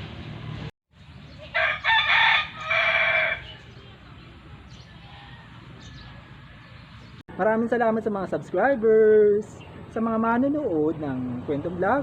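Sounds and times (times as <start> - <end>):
rooster crowing: 1.4 - 3.6, 4.9 - 6.8.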